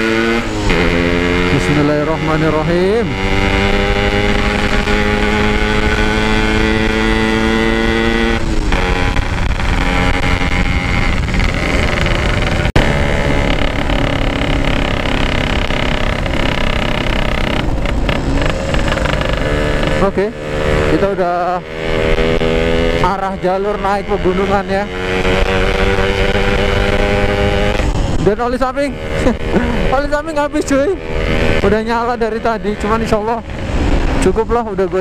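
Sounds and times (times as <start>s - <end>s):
motorcycle engine: 0.0s - 35.0s
wind on microphone: 3.1s - 20.9s.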